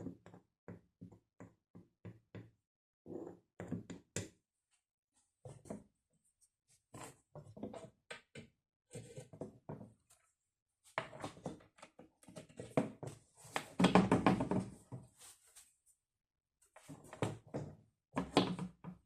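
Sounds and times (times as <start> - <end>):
hard objects knocking and clattering: 11.0 - 15.0.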